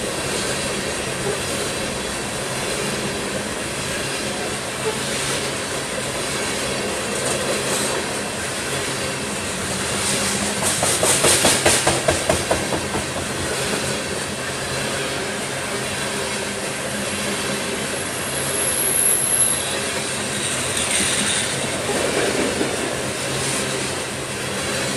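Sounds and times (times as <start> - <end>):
train cars rumbling on rails: 0.0 - 24.9
wheel clacks on rail joint: 10.0 - 14.3.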